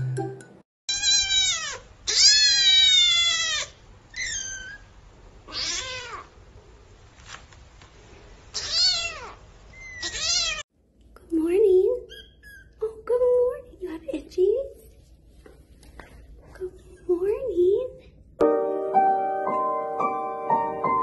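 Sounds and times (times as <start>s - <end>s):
kittens mewing: 0.9s - 6.4s, 8.5s - 10.6s.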